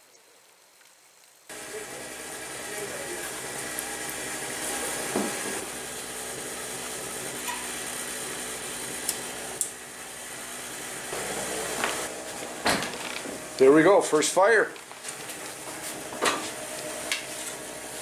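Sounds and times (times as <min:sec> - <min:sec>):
wood stove fire hissing: 0:00.0 - 0:18.0.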